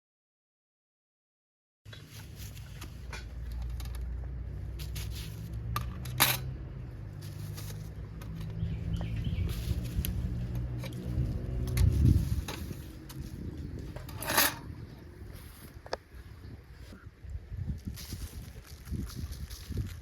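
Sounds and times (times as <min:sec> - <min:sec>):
low steady rumble: 0:02.0 - 0:16.8
metal cooking gear clinking: 0:14.0 - 0:14.7.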